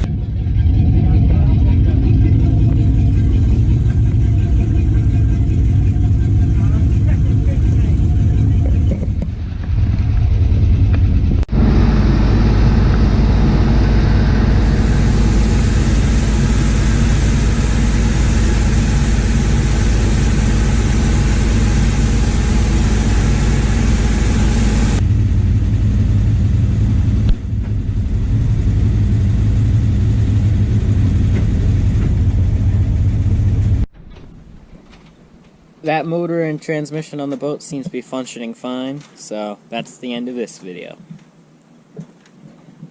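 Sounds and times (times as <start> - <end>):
rushing wind: 0.0 - 35.8
boat engines droning: 0.0 - 37.4
water rushing: 11.5 - 25.0.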